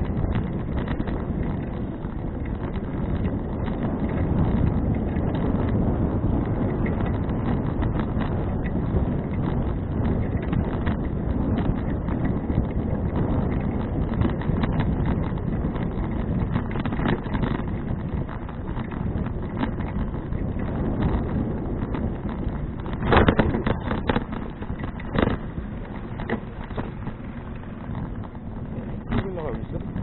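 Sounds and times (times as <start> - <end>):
bike rattling clicks and knocks: 0.0 - 30.0
wind rushing over microphone: 0.0 - 30.0.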